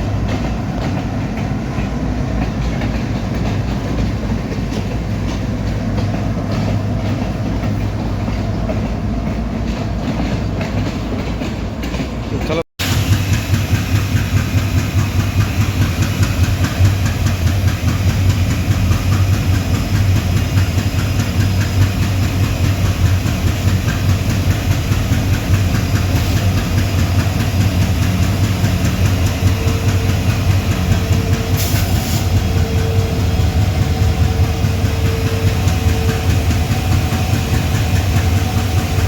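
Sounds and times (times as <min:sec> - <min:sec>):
diesel locomotive engine humming: 0:00.0 - 0:39.0
steady higher tone: 0:28.7 - 0:39.0.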